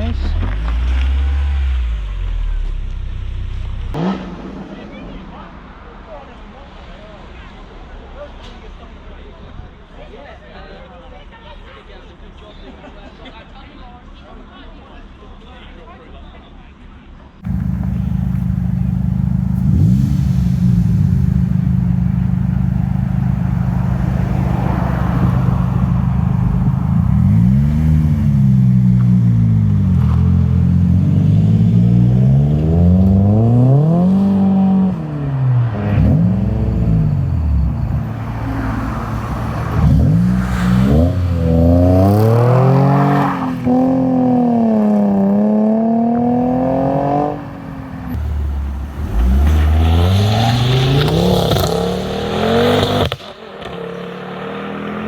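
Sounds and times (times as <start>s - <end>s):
car engine idling and revving: 0.0s - 5.9s, 17.4s - 55.0s.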